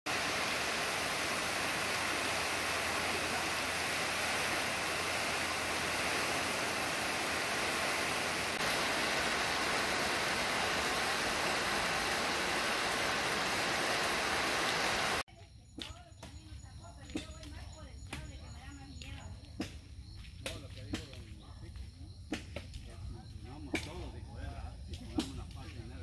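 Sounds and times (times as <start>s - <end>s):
heavy rain pouring: 0.1s - 15.2s.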